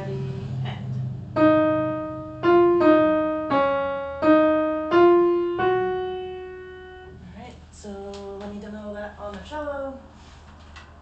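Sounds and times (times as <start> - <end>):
piano notes: 0.0 - 7.5.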